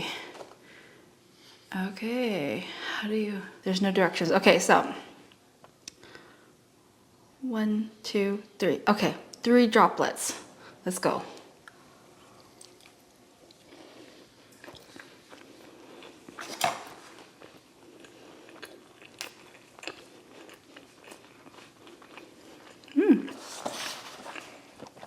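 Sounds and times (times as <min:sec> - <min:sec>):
person humming: 0:23.0 - 0:23.4.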